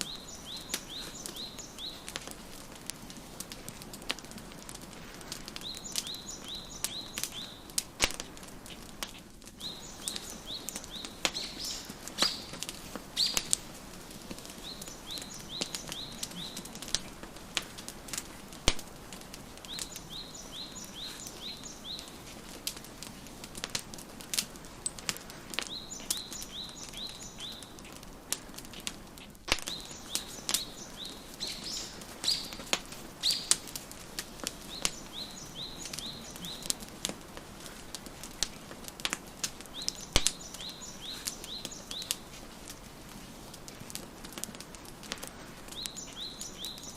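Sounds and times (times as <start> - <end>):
small bird chirping: 0.0 - 2.2, 5.6 - 7.7, 9.6 - 13.6, 14.6 - 16.8, 19.7 - 22.2, 25.6 - 28.0, 29.2 - 33.7, 34.6 - 36.9, 39.6 - 42.3, 45.8 - 46.9
wood fire crackling and popping: 0.0 - 46.9.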